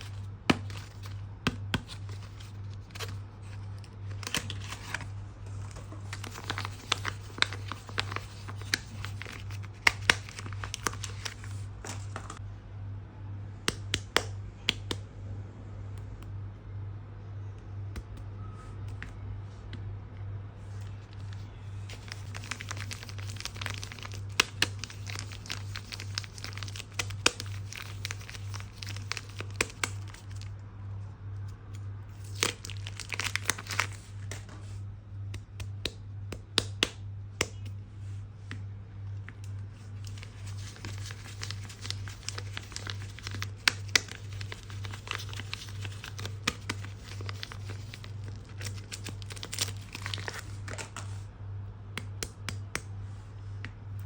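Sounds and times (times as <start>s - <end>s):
soap wrapping crinkling and tearing: 0.0s - 12.4s, 20.8s - 30.5s, 31.7s - 34.4s, 39.5s - 51.2s.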